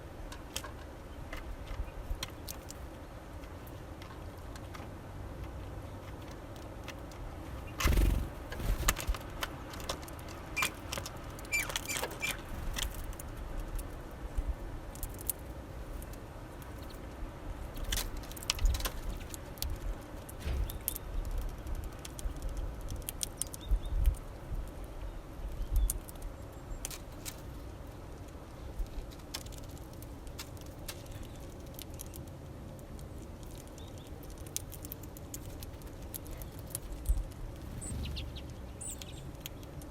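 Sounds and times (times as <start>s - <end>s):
birds pecking taps and clicks: 3.4s - 14.0s, 17.7s - 24.9s, 28.1s - 39.9s.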